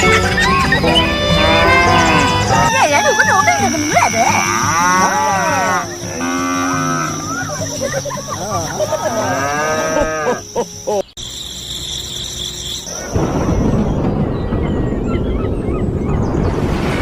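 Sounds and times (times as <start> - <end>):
cattle mooing: 1.0 - 7.7, 8.9 - 10.4.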